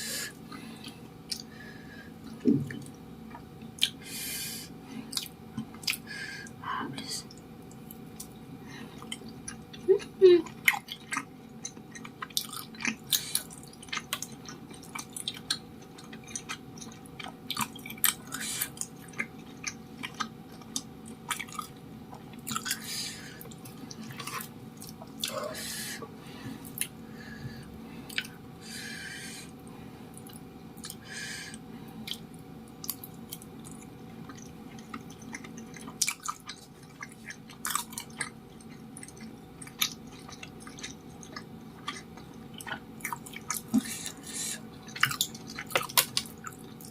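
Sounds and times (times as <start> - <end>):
close chewing: 9.0 - 25.4, 28.1 - 28.4, 32.0 - 46.9
wet mouth clicks and smacks: 39.0 - 44.1.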